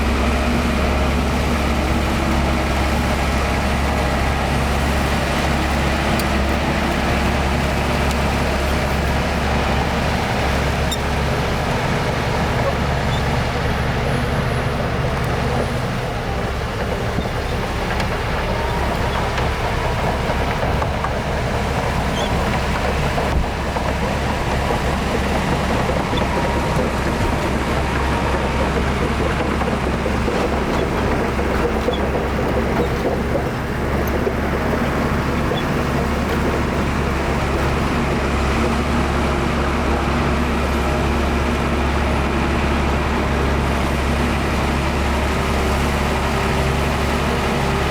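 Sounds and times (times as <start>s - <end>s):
heavy diesel engines droning: 0.0s - 47.9s.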